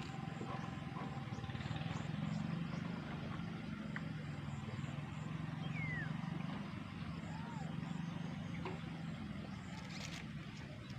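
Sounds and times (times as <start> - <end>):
tractor engine running: 0.0 - 7.2.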